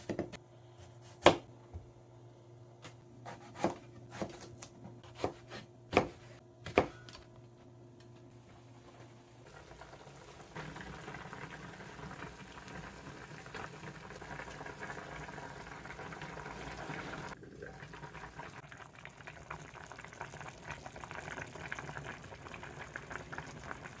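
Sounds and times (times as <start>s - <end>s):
soup bubbling in a pot: 9.4s - 24.0s.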